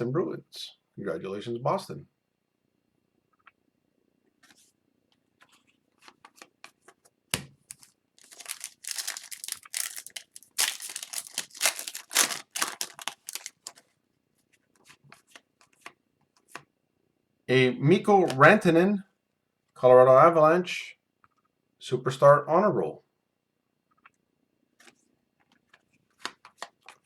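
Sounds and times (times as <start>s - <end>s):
wrapper tearing and crinkling: 7.8s - 13.8s.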